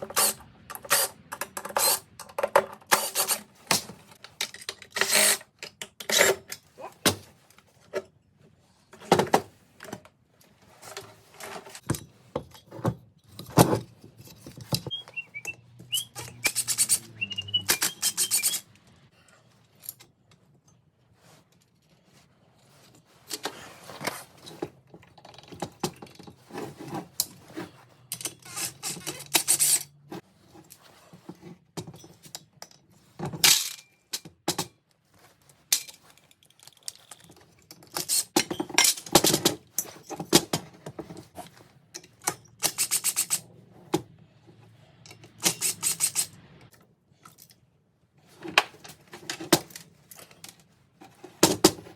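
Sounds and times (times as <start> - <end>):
metal parts clinking and rattling: 0.0 - 6.7, 15.9 - 19.0, 31.8 - 34.7, 35.5 - 43.4, 45.0 - 46.4, 48.7 - 51.8.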